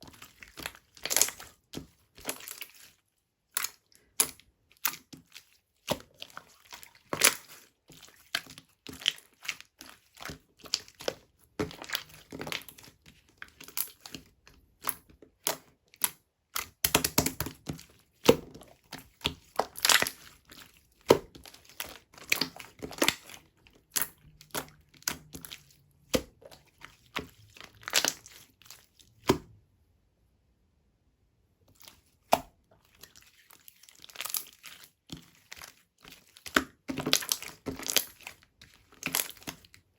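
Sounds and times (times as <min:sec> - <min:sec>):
slime squished popping and crackling: 0:00.1 - 0:01.5, 0:14.8 - 0:28.6.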